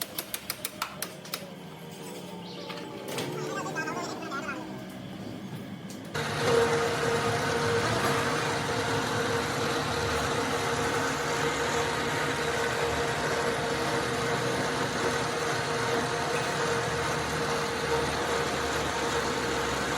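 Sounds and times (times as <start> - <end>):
lathe humming: 6.2 - 19.9.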